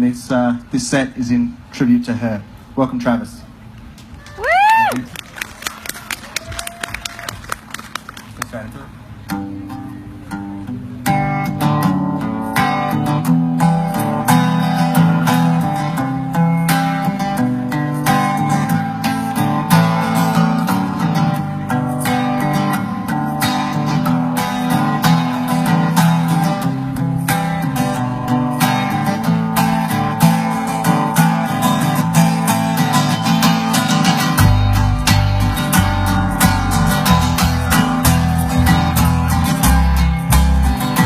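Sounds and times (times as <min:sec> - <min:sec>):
strummed acoustic guitar: 0:09.0 - 0:41.0.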